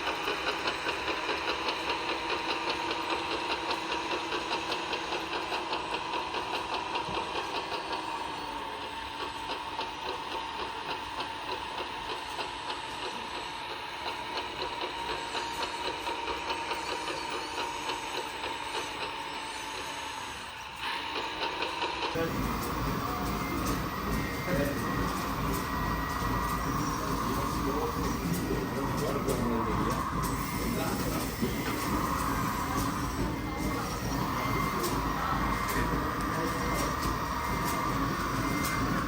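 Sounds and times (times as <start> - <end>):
engine sound module idling: 22.1 - 39.0.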